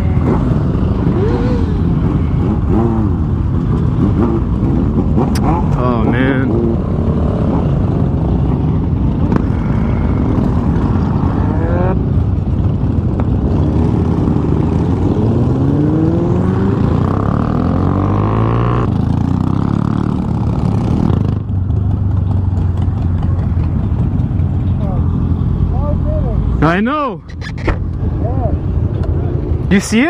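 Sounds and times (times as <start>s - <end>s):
motorcycle engine accelerating: 0.0s - 26.4s.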